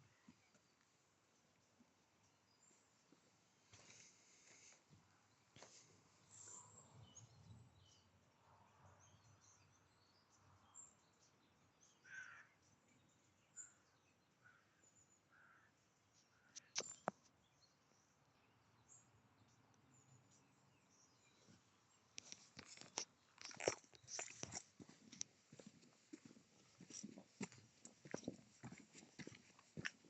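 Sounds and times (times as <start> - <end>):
faint bird calls: 12.0 - 12.6, 13.6 - 17.1.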